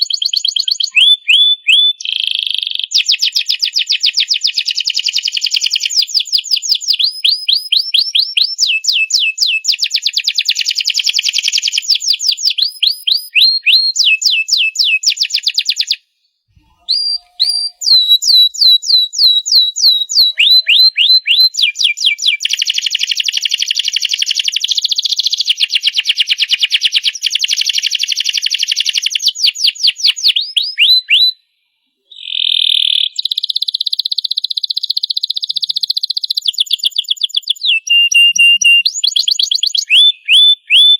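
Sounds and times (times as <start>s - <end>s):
canary singing rapid trills: 16.7s - 31.3s.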